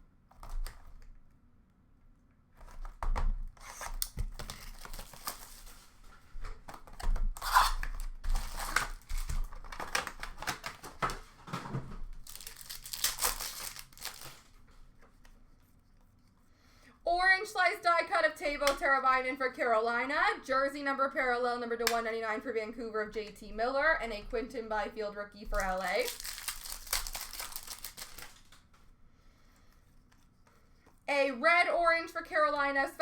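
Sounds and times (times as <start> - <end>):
packaging torn open and crinkled: 3.5 - 6.0, 6.7 - 11.2, 12.2 - 14.6, 25.5 - 28.6.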